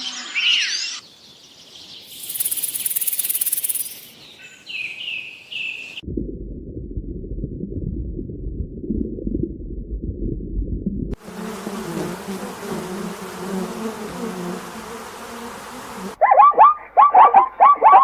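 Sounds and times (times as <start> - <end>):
rapid bird chirps: 1.9 - 6.0
insect buzzing: 2.1 - 4.2, 11.2 - 16.2
low rough rumbling: 6.0 - 11.2.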